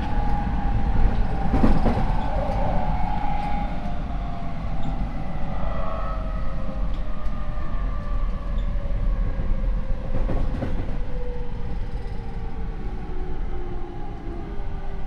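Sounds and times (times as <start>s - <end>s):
rail rumble: 0.0s - 11.0s.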